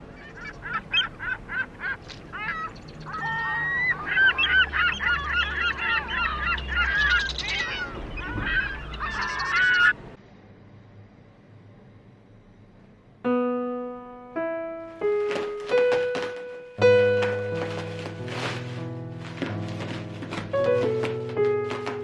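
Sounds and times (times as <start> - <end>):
flock of birds calling: 0.0 - 10.0.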